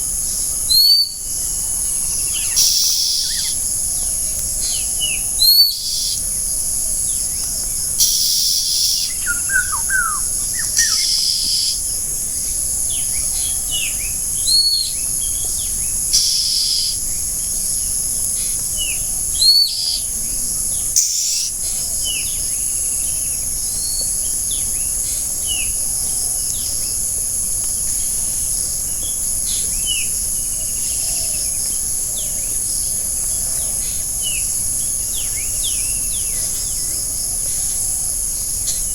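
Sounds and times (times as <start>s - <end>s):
insect chorus drone: 0.0s - 38.9s
loud upswept bird calls: 2.2s - 3.6s, 4.6s - 6.2s, 8.0s - 11.9s, 20.9s - 22.4s.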